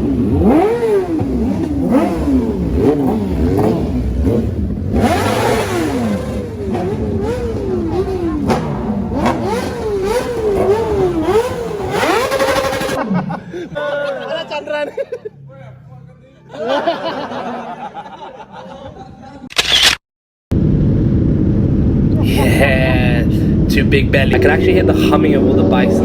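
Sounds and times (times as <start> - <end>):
motorcycle engines revving: 0.0 - 13.4, 21.4 - 26.0.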